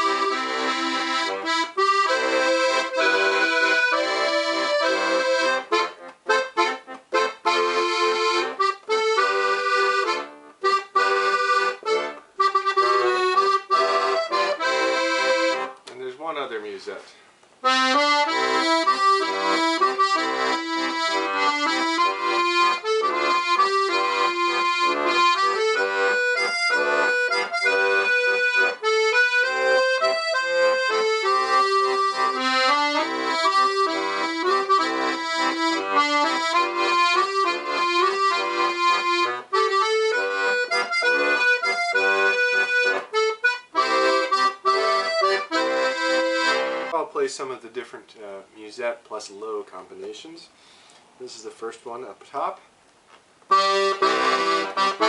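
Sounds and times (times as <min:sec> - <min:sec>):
piano accordion playing a tune: 0:00.0 - 0:15.8, 0:17.6 - 0:47.0, 0:53.5 - 0:55.0.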